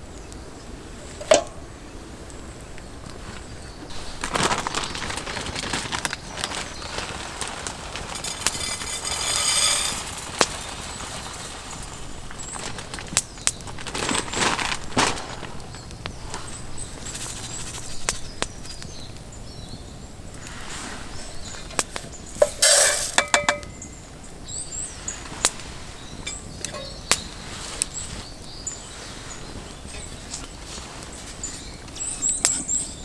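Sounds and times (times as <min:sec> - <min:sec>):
clattering clink: 0:08.2 - 0:12.1, 0:22.4 - 0:23.9.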